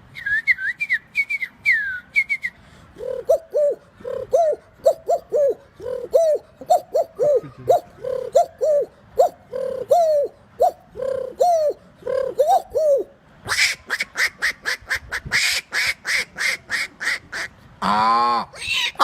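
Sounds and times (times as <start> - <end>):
person imitating pigeon cooing: 3.0 - 15.5, 17.4 - 19.0.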